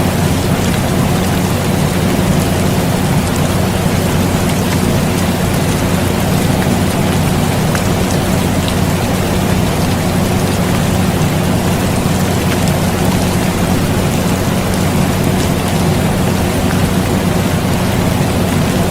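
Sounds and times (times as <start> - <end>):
air conditioner hum: 0.0 - 18.9
drops ticking: 0.0 - 18.9
rain falling steadily: 0.0 - 18.9.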